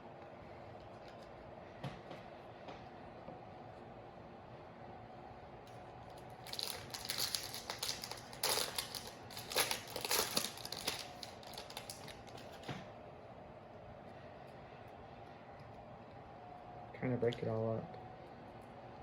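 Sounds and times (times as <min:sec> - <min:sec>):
foil wrapper crinkling: 0:06.2 - 0:12.7.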